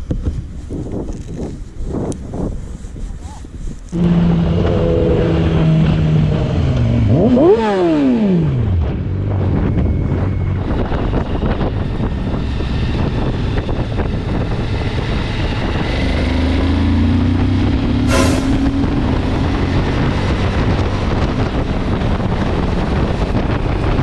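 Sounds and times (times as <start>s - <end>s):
motorcycle engine revving: 4.0s - 10.2s
steady rushing noise: 18.1s - 19.4s.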